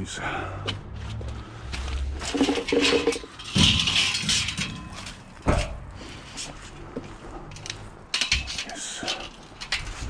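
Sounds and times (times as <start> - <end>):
scrap metal clanking: 2.1 - 6.6, 7.5 - 10.0.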